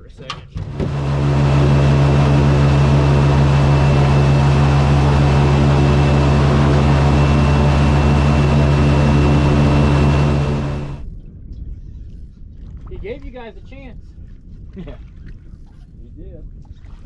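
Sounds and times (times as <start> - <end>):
boat engine running: 0.6 - 11.0
high engine whine: 0.6 - 11.0.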